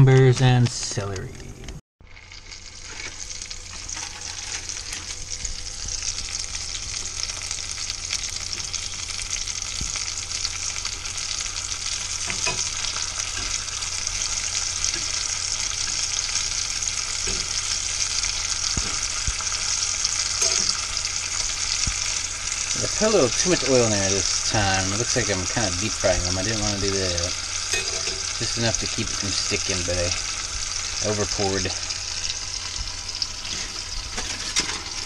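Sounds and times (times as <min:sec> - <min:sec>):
sausage sizzling in oil: 0:02.0 - 0:35.0
metal utensil clicking on pan: 0:27.7 - 0:28.3.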